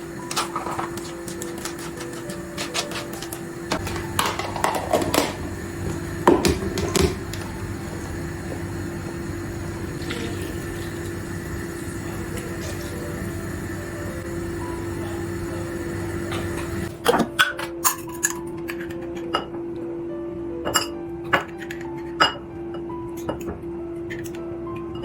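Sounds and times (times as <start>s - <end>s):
dishes and utensils clattering: 0.0s - 8.6s, 11.8s - 13.2s, 16.0s - 19.6s, 20.6s - 24.4s
appliance hum: 0.0s - 25.0s.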